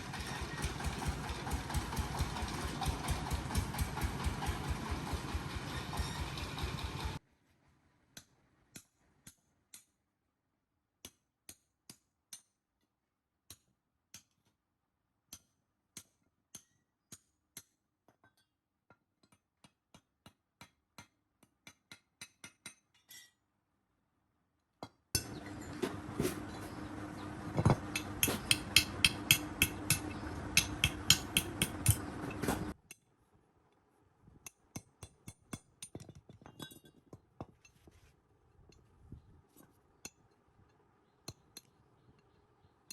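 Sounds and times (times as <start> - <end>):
hand tools tapping metal: 25.2 - 32.8
loud hammering: 25.2 - 32.8.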